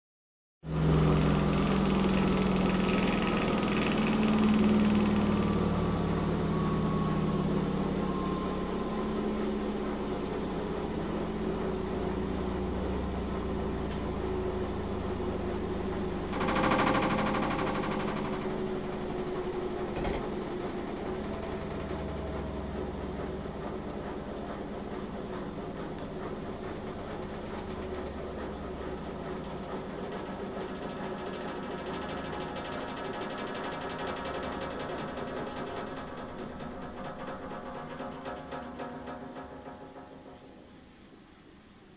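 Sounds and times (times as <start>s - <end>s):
falling whine: 0.7s - 32.6s
washing machine spinning: 0.7s - 41.9s.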